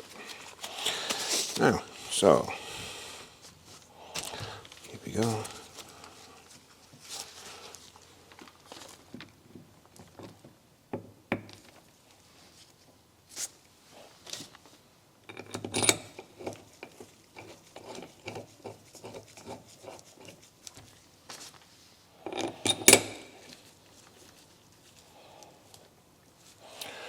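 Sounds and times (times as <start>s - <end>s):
metal clinks and knocks of tools: 15.3s - 16.6s, 22.2s - 23.6s.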